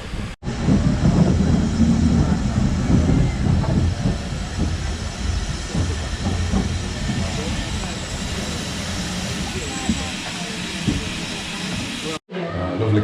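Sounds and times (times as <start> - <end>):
steam hissing: 0.0 - 12.2
steam locomotive rumbling: 0.0 - 12.2.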